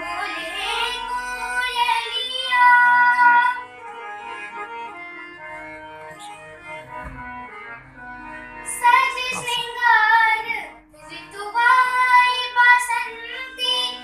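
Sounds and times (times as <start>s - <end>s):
sustained instrumental accompaniment: 0.0s - 14.0s
high voice singing: 8.9s - 10.0s.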